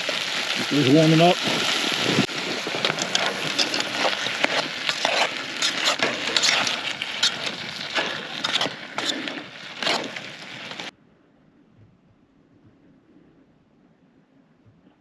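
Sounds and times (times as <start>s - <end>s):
food sizzling in a pan: 0.0s - 10.9s
wood fire crackling: 0.0s - 10.9s.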